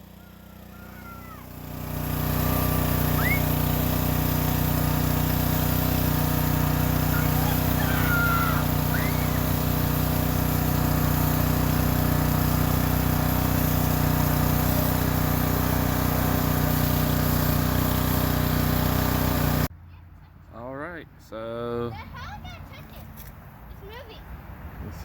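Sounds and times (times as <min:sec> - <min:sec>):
high-pressure water spray hissing: 0:00.0 - 0:19.7
pressure washer running: 0:00.0 - 0:19.7.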